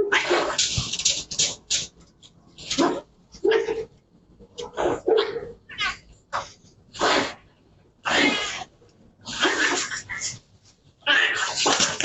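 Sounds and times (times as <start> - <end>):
dogs attacking a cat: 0.0 - 2.0, 4.5 - 10.4, 11.0 - 12.0.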